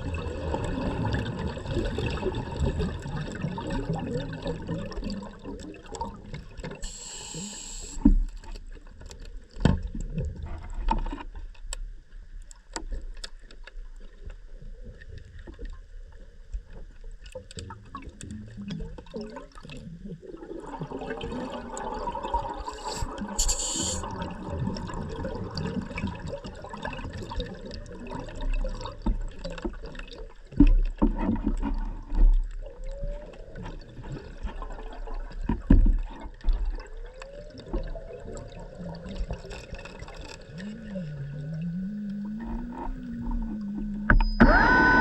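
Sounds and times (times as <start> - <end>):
short hiss: 6.8 - 8.0, 22.7 - 24.0
underwater motor whine: 6.8 - 8.0, 22.8 - 24.1, 39.2 - 45.0.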